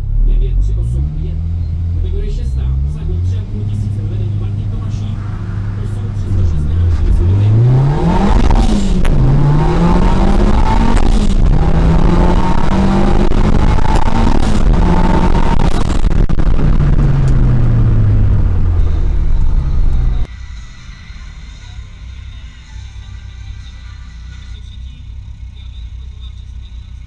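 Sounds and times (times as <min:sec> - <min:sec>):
car engine revving through gears: 0:00.0 - 0:20.3.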